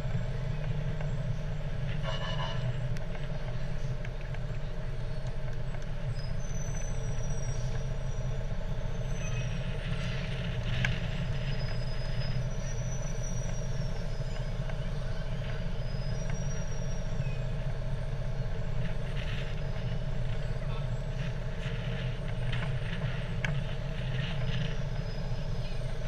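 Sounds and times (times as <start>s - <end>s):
fire truck engine running: 0.0s - 26.0s
faint voices: 18.5s - 26.0s.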